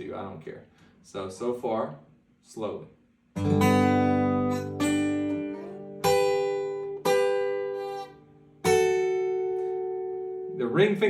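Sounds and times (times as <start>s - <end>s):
acoustic guitar played slowly: 3.3s - 11.0s.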